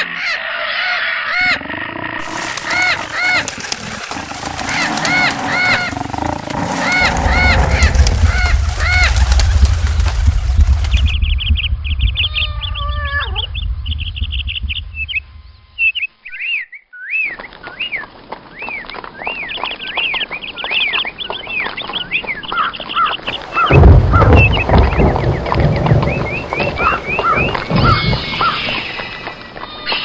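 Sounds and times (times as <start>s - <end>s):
birds chirping: 0.0s - 30.0s
low rumble: 2.2s - 15.9s, 23.4s - 29.4s
whistled bird calls: 15.8s - 30.0s.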